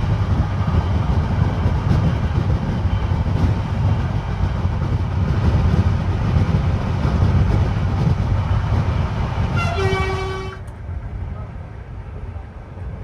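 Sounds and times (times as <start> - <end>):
vehicle horn: 9.6 - 10.7.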